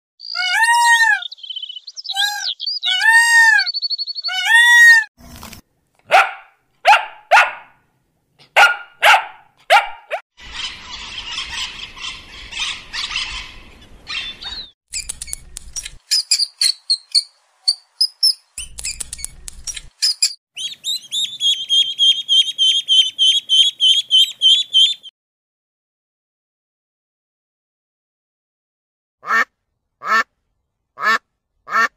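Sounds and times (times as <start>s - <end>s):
dog barking: 6.1s - 7.8s, 8.4s - 10.2s.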